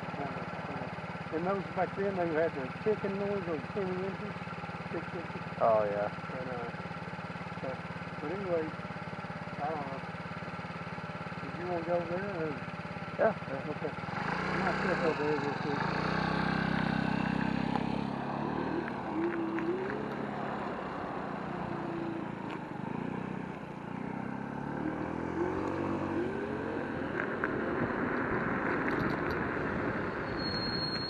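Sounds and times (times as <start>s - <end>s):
wind and tyre noise: 13.9s - 31.0s.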